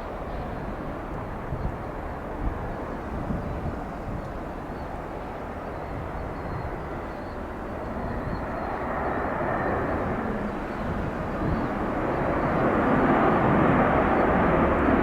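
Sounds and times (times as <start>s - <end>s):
jet engine rushing: 5.2s - 15.0s.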